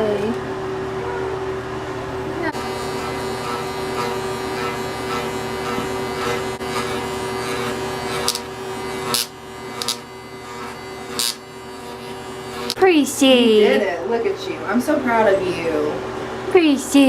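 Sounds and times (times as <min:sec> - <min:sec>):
electric hair clippers buzzing: 0:02.4 - 0:13.8.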